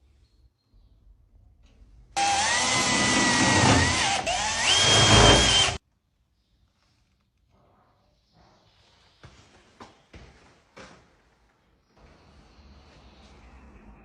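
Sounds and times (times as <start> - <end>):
electric drill whine: 2.2 - 5.8.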